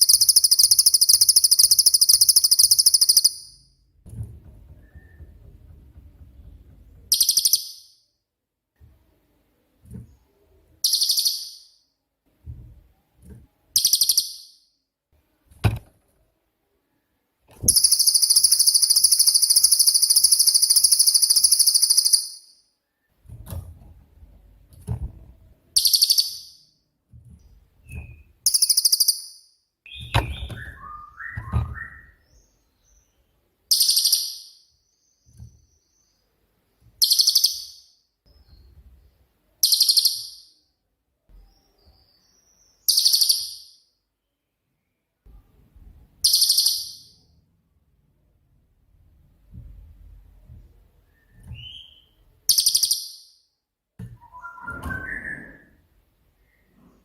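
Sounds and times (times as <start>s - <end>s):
bird rattling trill: 0.0s - 3.5s, 17.7s - 22.4s, 28.5s - 29.2s
bird singing high rapid bursts: 0.0s - 3.6s, 7.1s - 7.9s, 10.8s - 11.7s, 13.8s - 14.6s, 17.7s - 22.5s, 28.4s - 31.2s, 33.7s - 34.6s, 37.0s - 37.8s, 39.6s - 40.5s, 46.2s - 47.2s, 51.6s - 53.3s.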